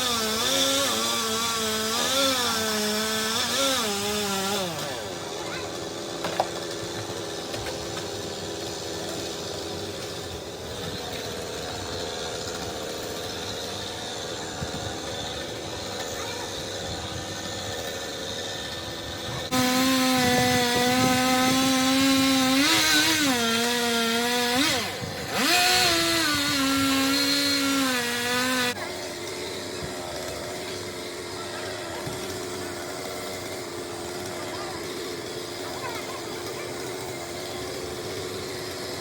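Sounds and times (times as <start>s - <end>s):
chainsaw running at high revs: 0.0s - 39.0s.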